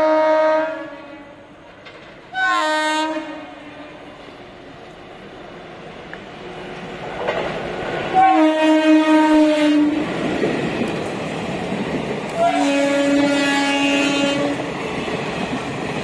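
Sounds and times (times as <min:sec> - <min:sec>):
train horn blasts: 0:00.0 - 0:01.6, 0:02.3 - 0:04.2, 0:08.2 - 0:10.0, 0:12.4 - 0:14.7
train rushing rumble: 0:01.3 - 0:16.0.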